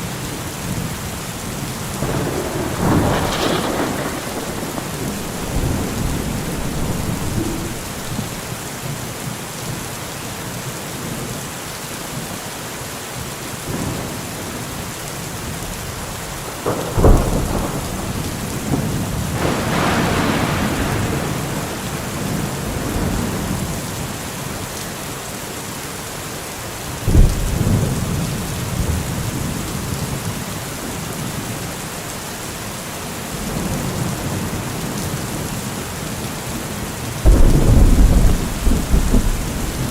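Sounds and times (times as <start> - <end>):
steady rain: 0.0 - 39.9
rolling thunder rumble: 0.5 - 8.8, 15.5 - 24.1, 27.1 - 30.4, 37.1 - 39.9
sharp thunderclap: 1.8 - 8.6, 16.5 - 23.9, 27.1 - 28.4, 37.2 - 39.9.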